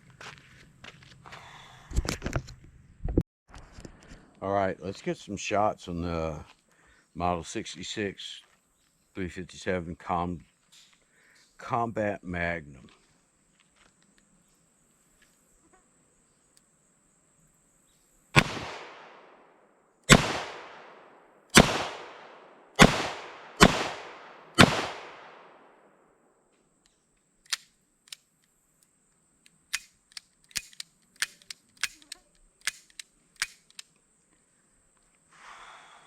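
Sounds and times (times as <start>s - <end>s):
revolver gunshots with echo: 18.4s - 19.5s, 20.1s - 25.8s
faint sharp clicks: 26.8s - 34.1s.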